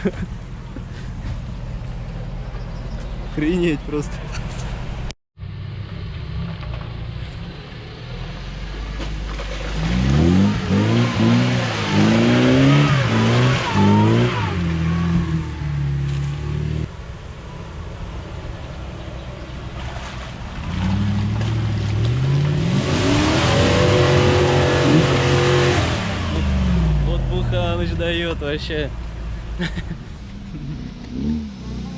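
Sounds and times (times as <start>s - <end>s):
van engine revving hard: 9.7s - 16.9s, 22.4s - 27.4s, 30.5s - 31.9s.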